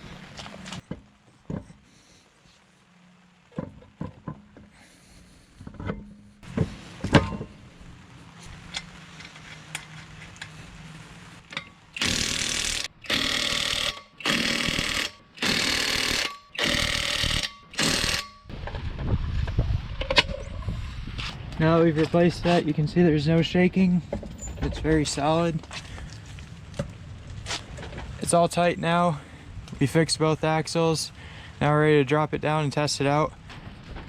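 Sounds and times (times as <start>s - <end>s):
power wrench bursts: 11.9s - 18.5s.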